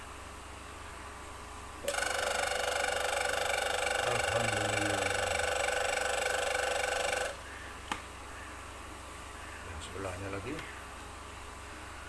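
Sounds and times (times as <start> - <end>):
small electric motor whining: 1.8 - 7.4.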